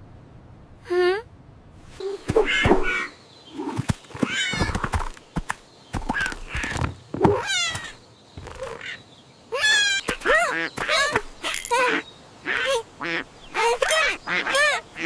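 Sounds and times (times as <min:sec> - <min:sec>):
squeaky meow-like calls: 0:07.3 - 0:08.0.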